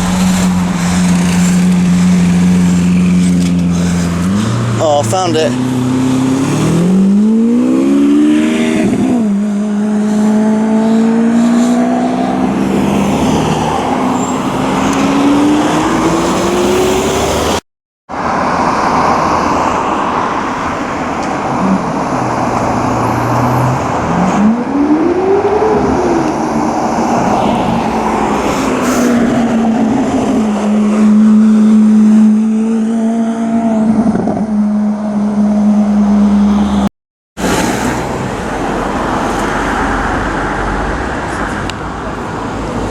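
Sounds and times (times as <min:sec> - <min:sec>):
sports car engine revving: 0:00.0 - 0:17.6.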